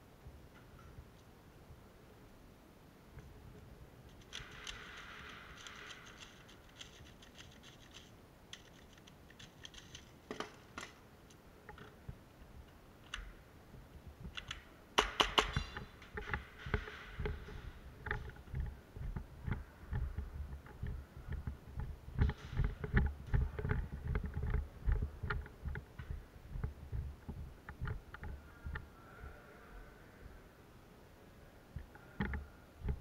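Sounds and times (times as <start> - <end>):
rapid ticks: 4.1 - 10.2.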